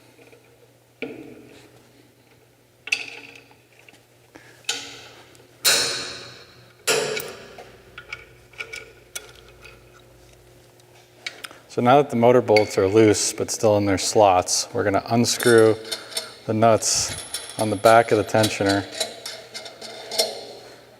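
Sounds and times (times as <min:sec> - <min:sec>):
wrench clanking on metal bolts: 0:05.7 - 0:10.0, 0:15.4 - 0:20.6.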